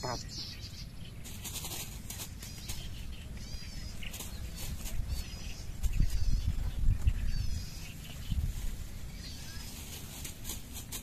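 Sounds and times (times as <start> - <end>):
bird warbling: 0.0 - 8.4
wind gusts on microphone: 3.6 - 9.9.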